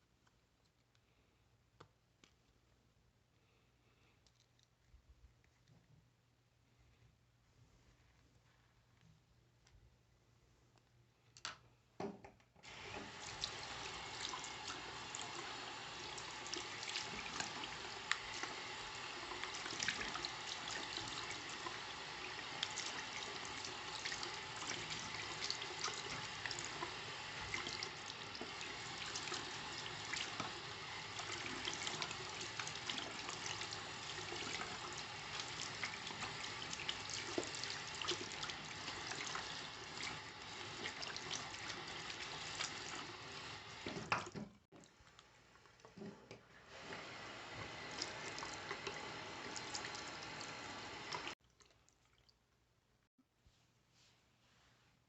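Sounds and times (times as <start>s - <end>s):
tap water running and splashing: 12.6s - 52.3s.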